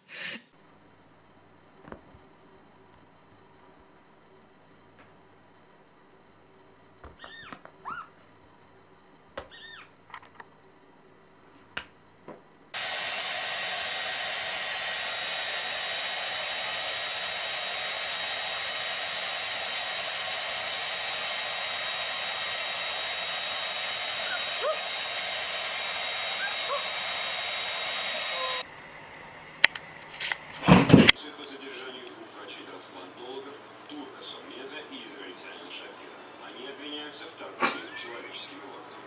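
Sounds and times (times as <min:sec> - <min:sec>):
hair dryer blowing with whine: 0:12.8 - 0:28.7.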